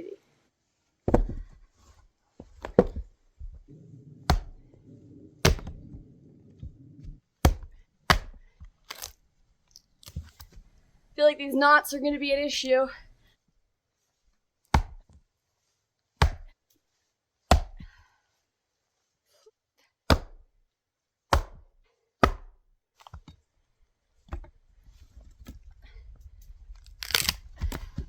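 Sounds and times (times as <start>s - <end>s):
axe chopping wood: 2.6s - 3.0s, 4.3s - 4.6s, 5.4s - 5.9s, 7.4s - 9.1s, 14.7s - 15.0s, 16.2s - 16.5s, 17.5s - 17.9s, 20.1s - 20.4s, 21.3s - 21.6s, 22.2s - 22.6s.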